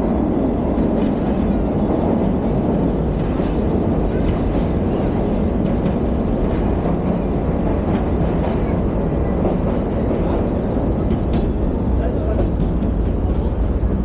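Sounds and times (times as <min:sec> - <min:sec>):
train rumbling on rails: 0:00.0 - 0:14.0.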